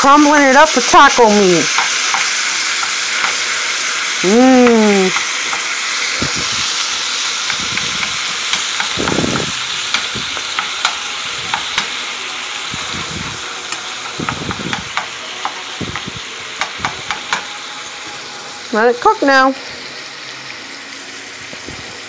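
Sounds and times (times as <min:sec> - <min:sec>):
meat sizzling in a skillet: 0:00.0 - 0:22.0
utensil clicking against pan: 0:01.6 - 0:03.5, 0:04.6 - 0:05.7, 0:07.4 - 0:12.0, 0:13.7 - 0:17.5.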